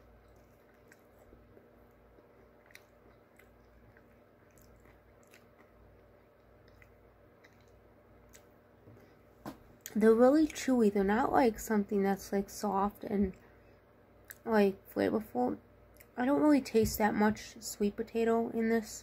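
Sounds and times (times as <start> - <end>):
faint chewing of fries: 0.0 - 10.7
low steady hum: 0.0 - 19.0.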